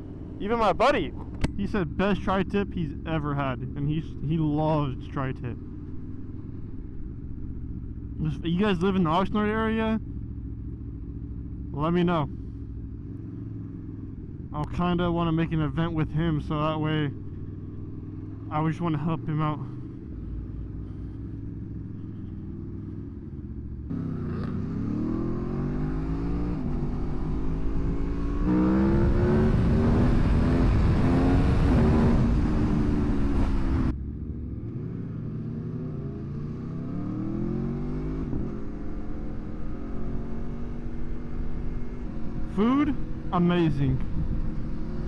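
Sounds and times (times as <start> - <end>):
motorcycle engine shifting gears: 0.0 - 2.7, 16.4 - 18.5, 19.3 - 45.0.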